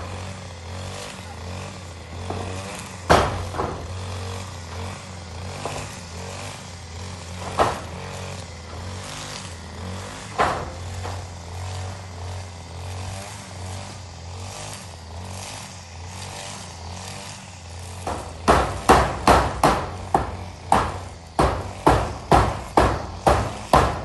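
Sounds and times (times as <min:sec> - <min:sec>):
hammer striking nails into metal roofing: 0:02.1 - 0:04.0, 0:05.5 - 0:06.0, 0:07.3 - 0:09.0, 0:10.2 - 0:11.4, 0:18.0 - 0:24.0.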